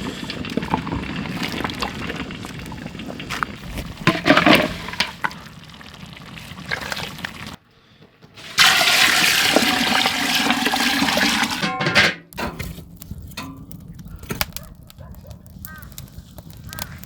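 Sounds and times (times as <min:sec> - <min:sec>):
water splashing and pouring: 0:00.0 - 0:07.6, 0:08.4 - 0:11.7.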